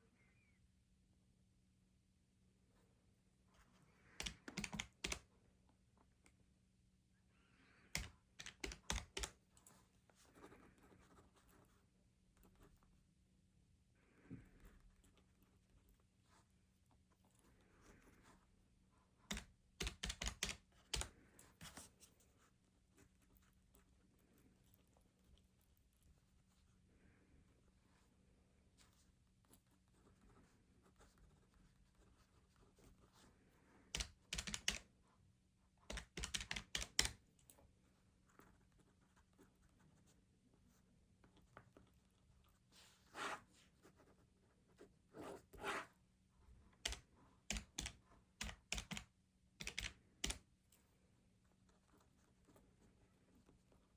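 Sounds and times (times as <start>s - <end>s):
rapid key taps: 4.2s - 5.2s, 8.0s - 9.4s, 19.3s - 21.2s, 34.0s - 34.8s, 35.9s - 37.2s, 46.8s - 50.4s.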